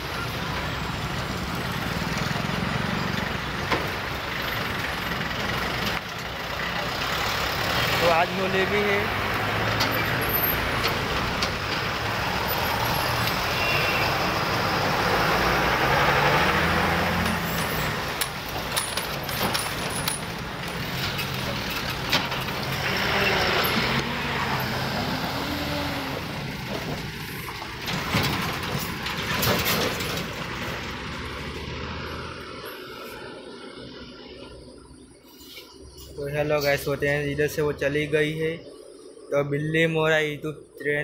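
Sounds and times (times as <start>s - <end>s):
train wheels clicking and clacking: 9.6s - 12.6s, 17.2s - 23.2s.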